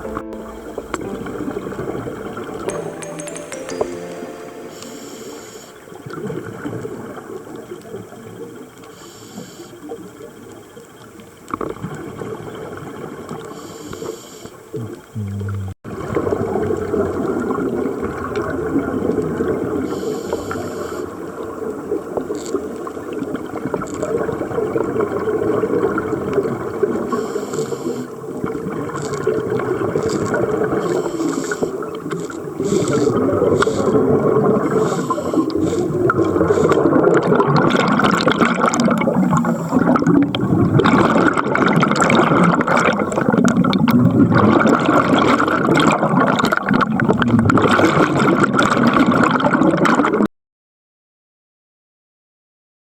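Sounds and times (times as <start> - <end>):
underwater water noise: 0.0 - 50.3
bubbling: 14.8 - 15.8, 36.0 - 50.2.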